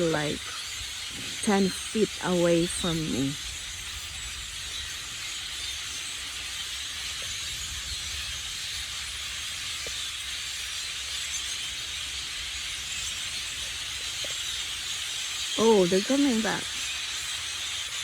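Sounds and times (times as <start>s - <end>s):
flock of birds chattering: 0.0s - 18.0s.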